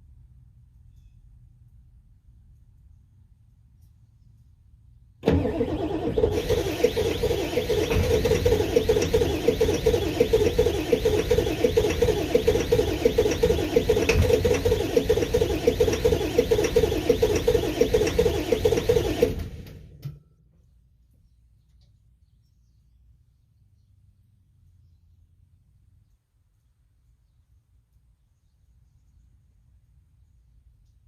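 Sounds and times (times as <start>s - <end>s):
diesel engine chugging: 5.2s - 20.0s.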